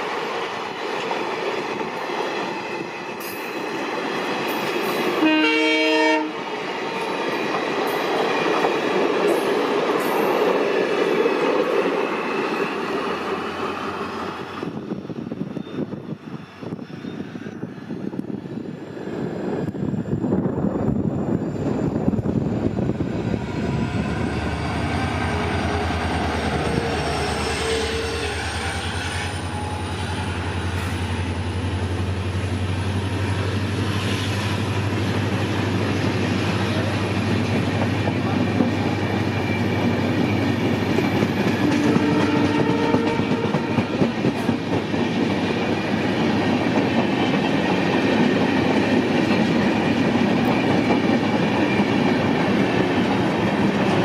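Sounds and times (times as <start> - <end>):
locomotive drone: 0.0 - 54.0
train horn: 5.0 - 6.4, 23.7 - 31.1, 41.6 - 44.1
train wheels clattering on rails: 28.3 - 54.0.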